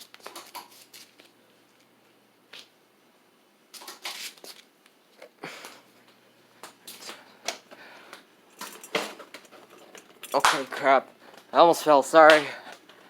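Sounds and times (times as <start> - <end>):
handling noise rustles and knocks: 8.5 - 10.9.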